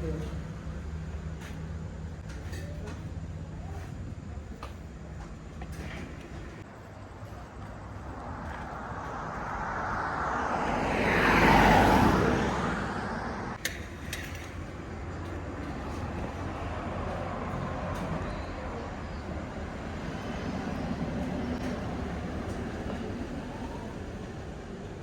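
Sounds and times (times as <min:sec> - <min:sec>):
street traffic rumble: 0:00.0 - 0:25.0
vehicle passing close by: 0:07.8 - 0:13.6.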